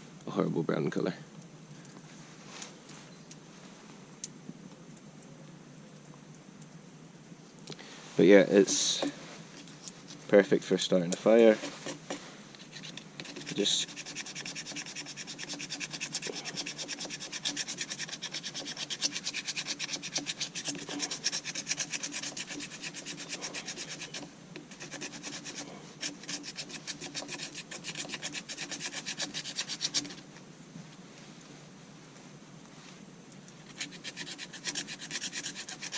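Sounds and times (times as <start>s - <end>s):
wood being scraped into tinder: 11.2s - 30.3s, 33.6s - 35.9s.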